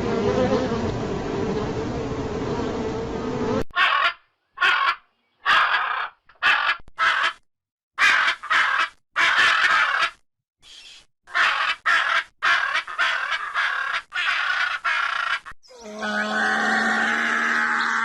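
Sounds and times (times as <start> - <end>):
crows cawing: 3.7 - 7.4, 8.0 - 10.2, 11.3 - 18.0.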